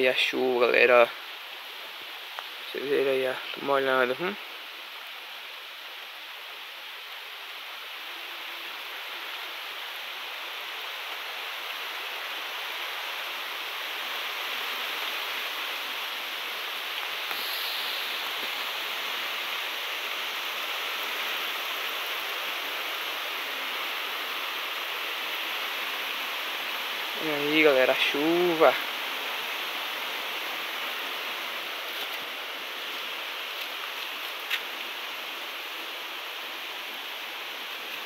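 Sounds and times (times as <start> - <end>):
rain falling: 0.0 - 38.0.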